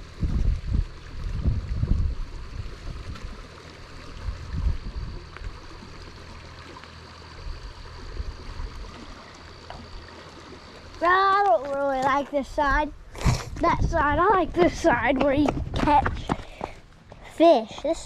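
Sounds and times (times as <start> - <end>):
creek water flowing: 0.0 - 18.0.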